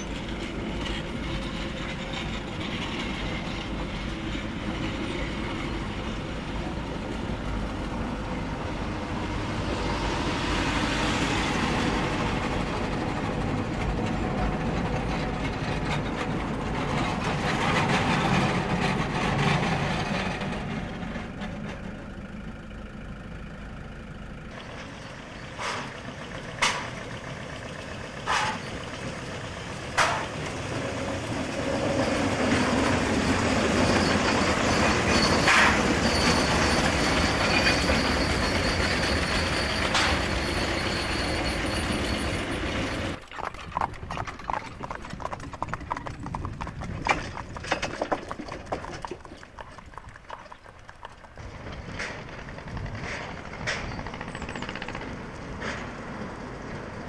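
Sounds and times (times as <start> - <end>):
steam train rumbling past: 0.0 - 22.1, 24.6 - 43.2.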